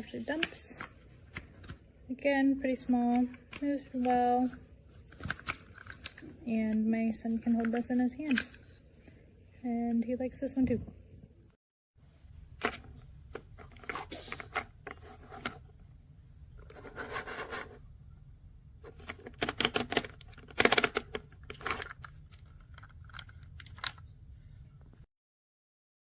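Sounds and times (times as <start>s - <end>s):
plastic toy trucks rattling: 18.9s - 24.0s
plastic toys clattering: 18.9s - 24.0s.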